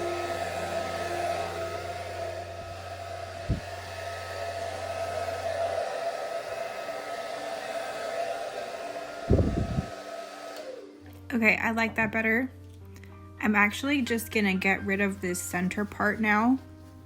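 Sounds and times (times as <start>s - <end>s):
hair dryer running: 0.0s - 11.2s.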